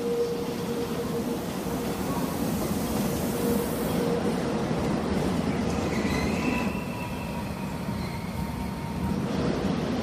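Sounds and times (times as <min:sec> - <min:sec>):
train wheels rumbling on rail: 0:00.0 - 0:10.0
high wheel squeal: 0:05.8 - 0:09.1.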